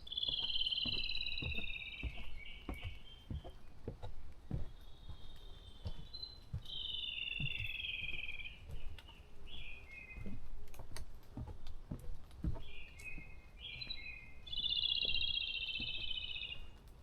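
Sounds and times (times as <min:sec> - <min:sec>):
songbird warbling: 0:00.0 - 0:03.6, 0:04.6 - 0:10.4, 0:12.6 - 0:16.7
soft low knocks and thuds: 0:00.2 - 0:06.8, 0:07.4 - 0:13.9.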